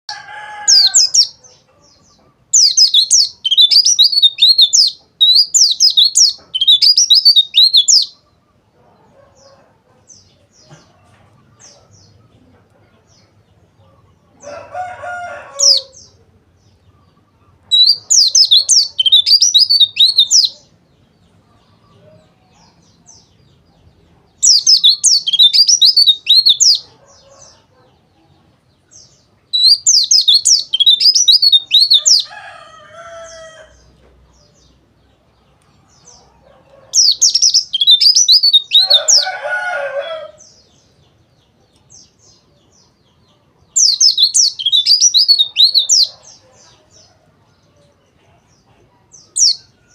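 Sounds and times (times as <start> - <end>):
bird high twittering song: 0.1 - 8.6, 15.5 - 20.8, 24.0 - 27.7, 28.8 - 47.1.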